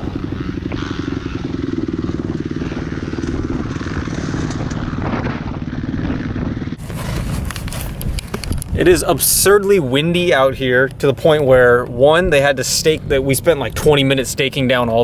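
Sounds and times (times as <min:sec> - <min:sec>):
vehicle engine running: 0:00.0 - 0:08.4
wind buffeting microphone: 0:00.0 - 0:15.0.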